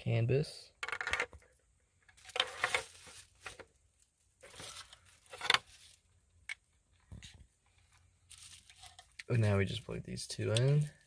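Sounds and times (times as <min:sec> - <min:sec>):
plastic connectors and wires rustling: 0:00.8 - 0:11.0.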